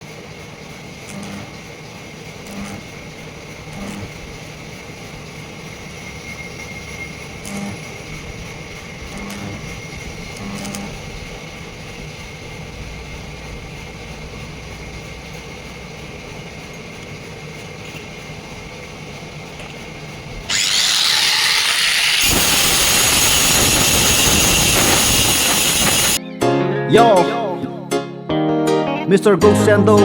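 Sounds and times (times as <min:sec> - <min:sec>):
sawmill machinery humming: 0:00.0 - 0:26.2
saw cutting harshly: 0:20.5 - 0:26.2
music: 0:26.2 - 0:30.0.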